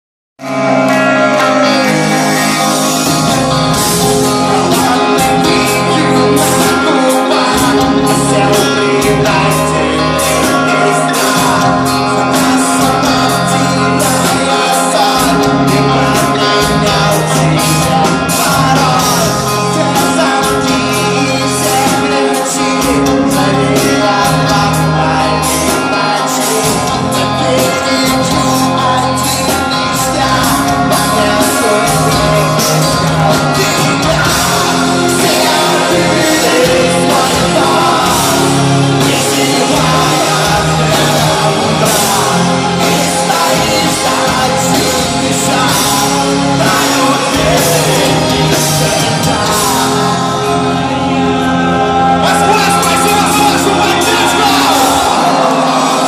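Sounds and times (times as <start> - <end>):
electric guitars: 0.4 - 56.0
metal band playing live: 0.4 - 56.0
person singing and shouting: 0.4 - 56.0
drums hit steadily: 25.5 - 50.3.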